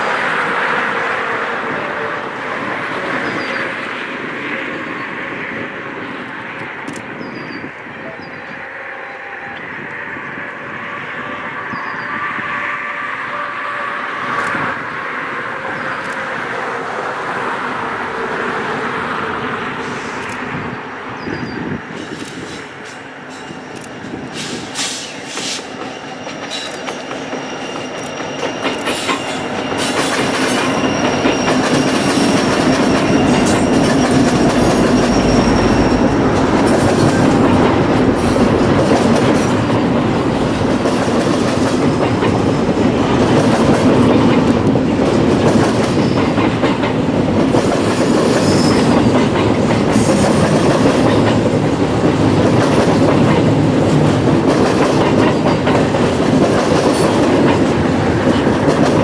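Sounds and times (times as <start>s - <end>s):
high wheel squeal: 21.2s - 37.4s, 48.0s - 49.2s
train wheels clattering over rail joints: 21.9s - 59.0s.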